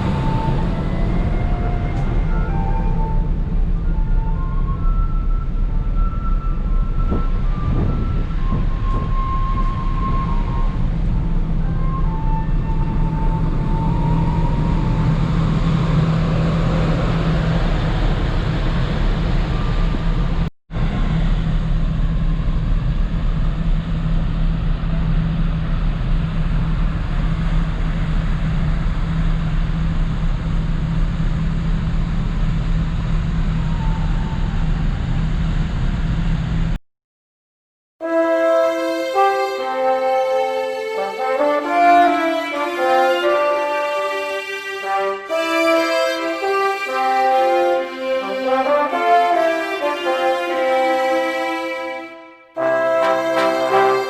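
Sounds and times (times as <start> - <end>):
rushing noise of moving vehicle: 0.0 - 3.8, 6.6 - 36.8
constant low hum: 0.0 - 36.8
low engine drone: 0.0 - 36.8.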